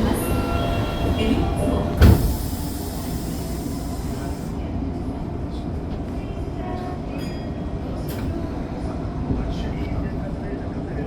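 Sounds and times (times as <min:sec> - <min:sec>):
subway train rumbling: 0:00.0 - 0:11.0
hiss: 0:02.1 - 0:04.5.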